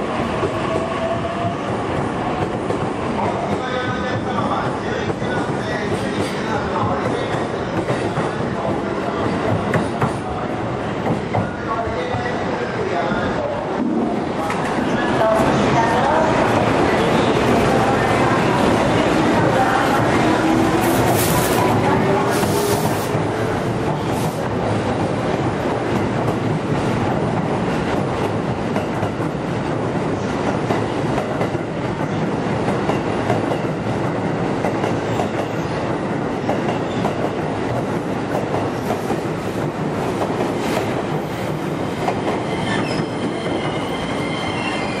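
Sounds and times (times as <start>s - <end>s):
high wheel squeal: 42.4s - 45.0s.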